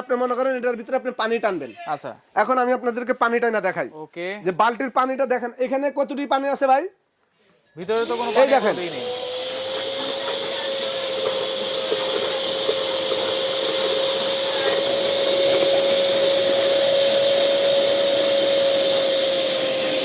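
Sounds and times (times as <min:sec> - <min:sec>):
vacuum cleaner whining: 0:07.8 - 0:20.0
water being sucked up: 0:08.1 - 0:20.0.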